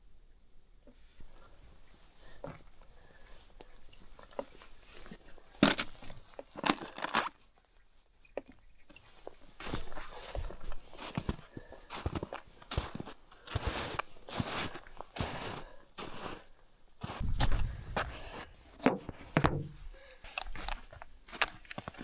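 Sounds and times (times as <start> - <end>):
footsteps on dry ground: 9.6 - 19.4, 20.3 - 22.0.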